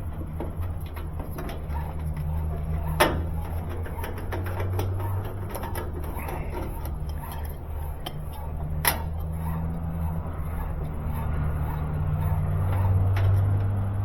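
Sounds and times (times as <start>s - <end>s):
steady low hum: 0.0s - 14.0s
clicks and taps on metal cabinet: 0.2s - 9.2s.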